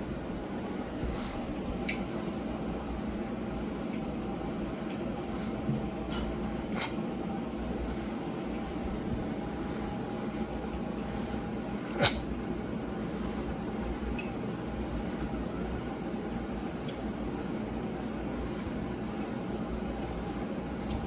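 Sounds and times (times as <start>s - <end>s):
mechanical room hum: 0.0s - 21.0s.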